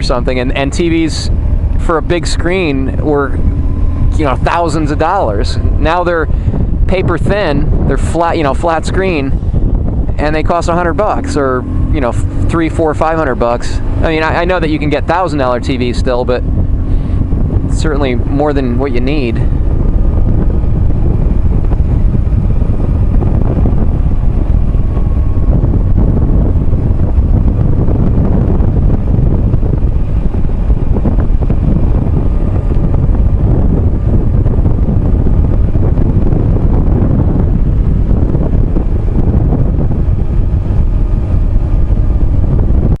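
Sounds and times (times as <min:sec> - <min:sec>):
motorcycle engine: 0:00.0 - 0:43.0
wind buffeting microphone: 0:00.0 - 0:43.0.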